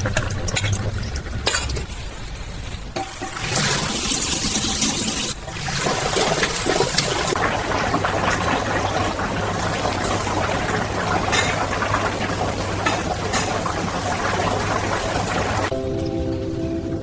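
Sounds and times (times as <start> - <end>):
water running from tap: 3.2 - 15.8.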